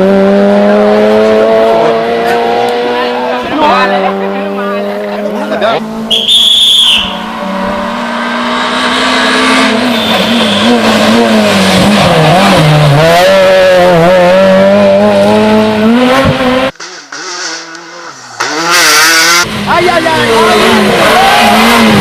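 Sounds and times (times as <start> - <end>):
rally car engine at full load: 0.0 - 22.0.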